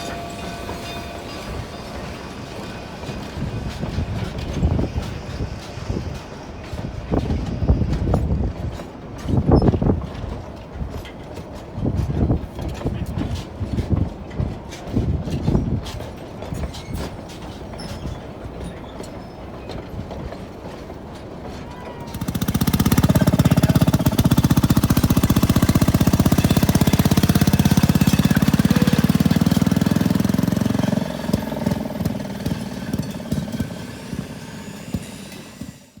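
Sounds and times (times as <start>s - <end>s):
small engine running: 22.0s - 36.0s.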